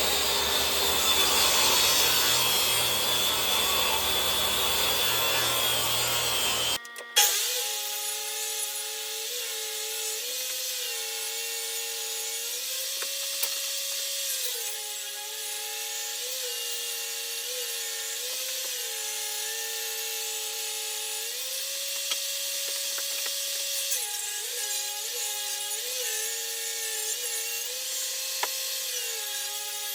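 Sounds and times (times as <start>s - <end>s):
rough cutting sound: 0.0s - 8.0s
power tool cutting wood: 0.0s - 29.9s.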